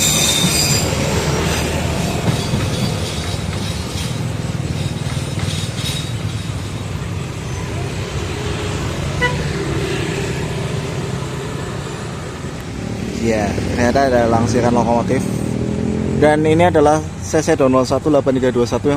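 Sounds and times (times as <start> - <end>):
locomotive engine rumbling: 0.0 - 18.1
short high horn toot: 9.2 - 9.5.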